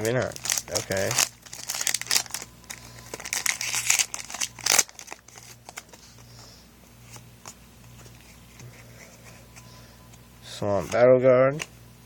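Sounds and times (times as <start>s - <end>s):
foil pack crinkling and tearing: 0.0s - 6.0s
cards clicking and rustling: 0.0s - 6.1s.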